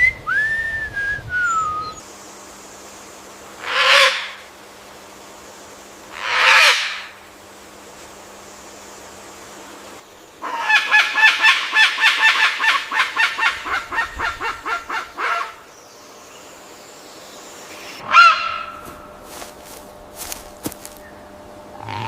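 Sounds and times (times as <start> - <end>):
bird honking calls: 10.4 - 15.7, 18.0 - 19.2.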